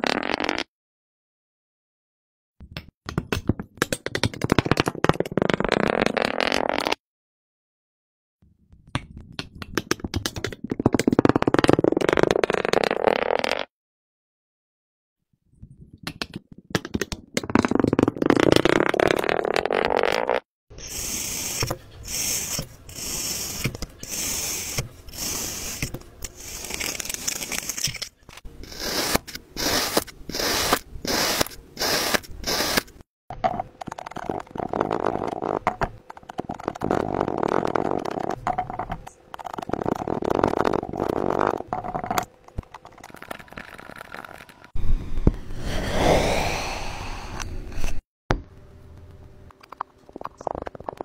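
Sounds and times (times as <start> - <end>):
scraping strokes with hiss: 20.8 - 27.3.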